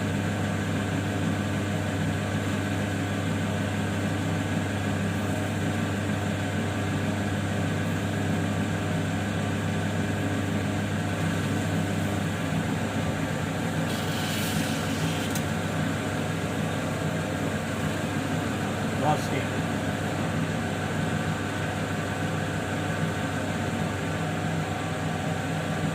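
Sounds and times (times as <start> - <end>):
brief hiss: 13.9 - 15.4.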